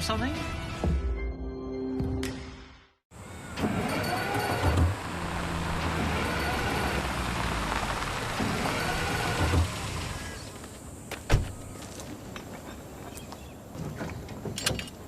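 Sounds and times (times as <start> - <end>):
vehicle engine running: 3.2 - 10.8.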